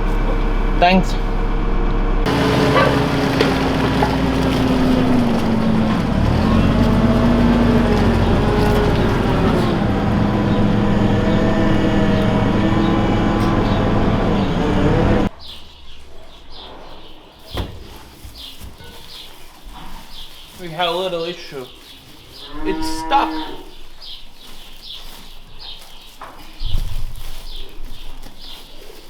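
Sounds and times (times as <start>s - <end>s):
farm machine engine running: 0.0s - 15.3s.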